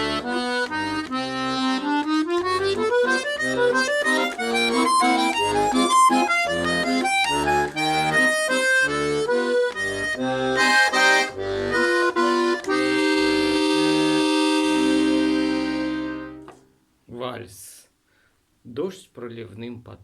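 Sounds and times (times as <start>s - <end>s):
accordion playing a waltz: 0.0s - 16.6s.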